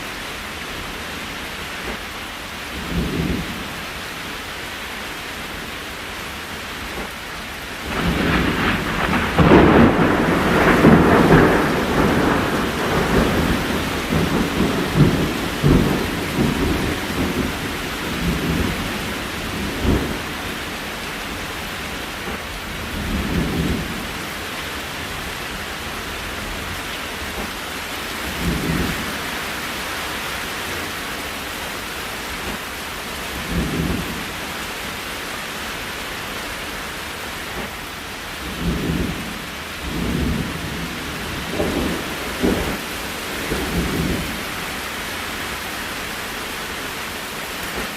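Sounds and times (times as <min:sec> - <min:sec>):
steady rain: 0:00.0 - 0:47.9
thunder rumbling: 0:07.8 - 0:29.4, 0:32.4 - 0:34.7, 0:37.5 - 0:45.1.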